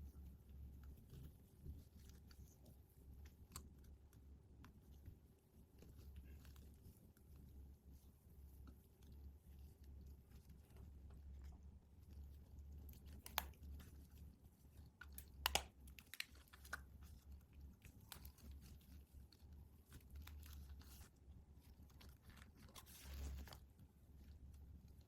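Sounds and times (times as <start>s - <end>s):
packaging crinkling and clicking: 15.0s - 18.9s
packaging rustle or tear: 21.8s - 23.7s.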